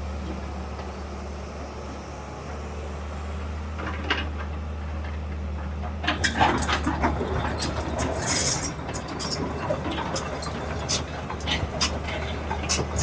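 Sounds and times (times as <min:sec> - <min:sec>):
demolition machine engine humming: 0:00.0 - 0:13.0.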